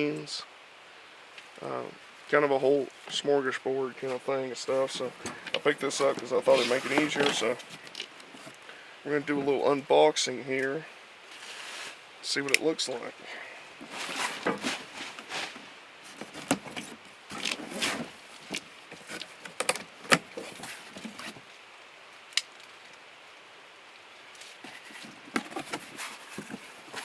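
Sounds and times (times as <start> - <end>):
cardboard box rustling and scraping: 4.0 - 8.6, 13.8 - 19.5, 20.1 - 21.4, 24.5 - 27.0.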